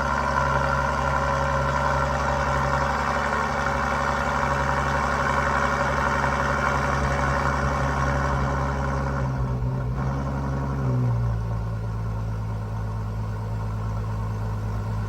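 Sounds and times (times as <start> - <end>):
car engine fast idling: 0.0 - 8.9.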